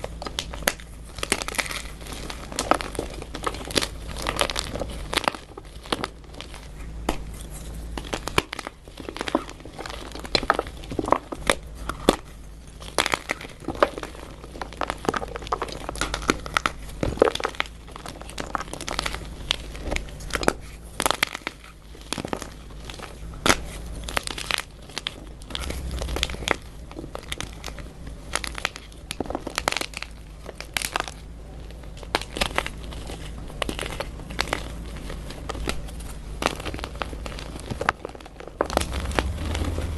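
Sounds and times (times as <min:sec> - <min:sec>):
chalk blocks crunching: 0:00.0 - 0:39.9.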